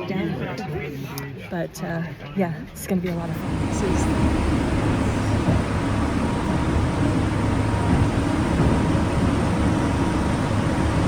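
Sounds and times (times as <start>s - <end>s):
train low rumble: 2.9s - 11.0s.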